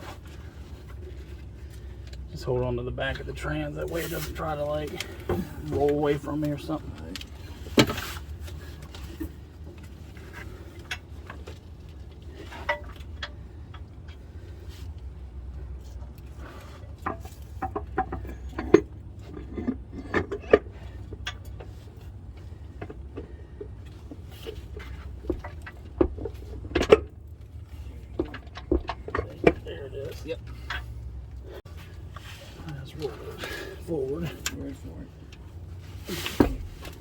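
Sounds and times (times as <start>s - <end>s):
steady low hum: 0.0s - 37.0s
metal clinks and knocks: 4.8s - 14.6s, 15.6s - 31.9s.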